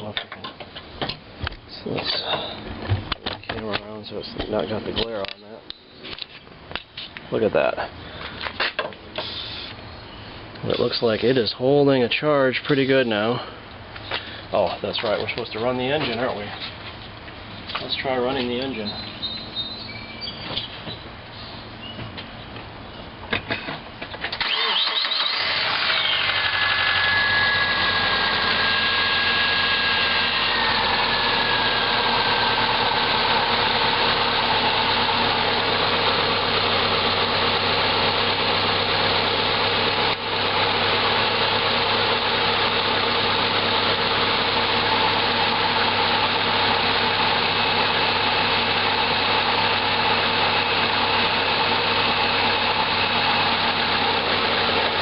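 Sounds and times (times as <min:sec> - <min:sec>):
car engine idling: 0:12.0 - 0:55.0.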